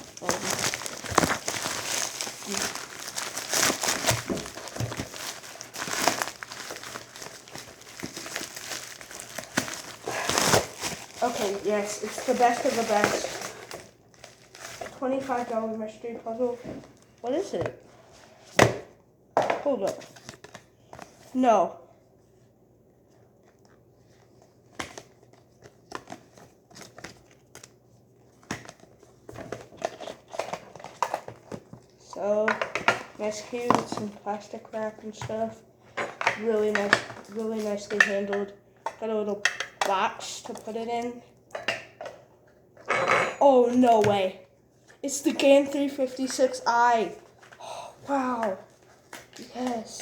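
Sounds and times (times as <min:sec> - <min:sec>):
plastic packaging crinkling: 0:00.0 - 0:17.4.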